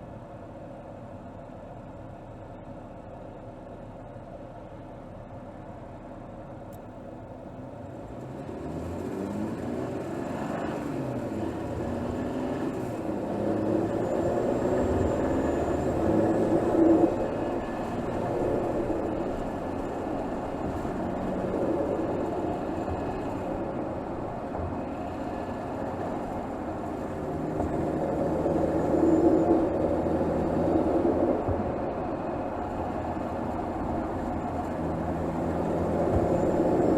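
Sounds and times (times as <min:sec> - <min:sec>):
car engine revving: 0:07.5 - 0:36.9.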